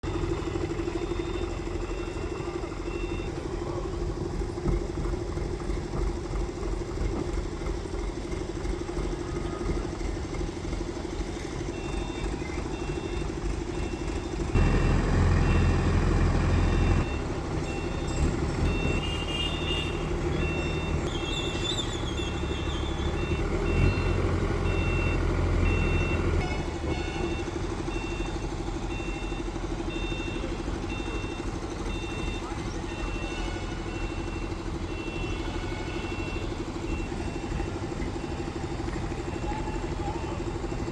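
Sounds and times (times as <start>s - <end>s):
heavy machinery engine running: 0.0s - 40.9s
warning alarm beeps: 11.8s - 40.9s.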